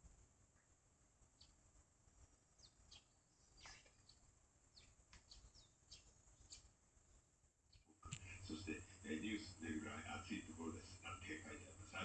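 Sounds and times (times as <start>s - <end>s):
sparrows chirping: 1.2s - 6.9s.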